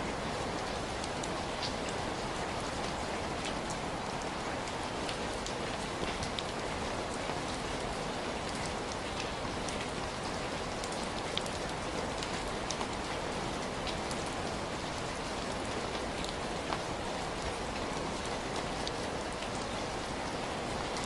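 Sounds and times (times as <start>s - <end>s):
heavy rain hiss: 0.0s - 10.3s
raindrops ticking on a surface: 0.0s - 21.0s.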